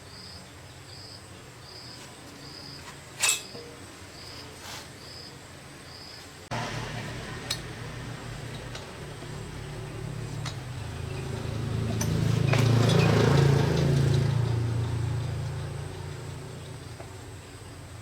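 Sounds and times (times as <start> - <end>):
motor humming: 6.5 - 18.0.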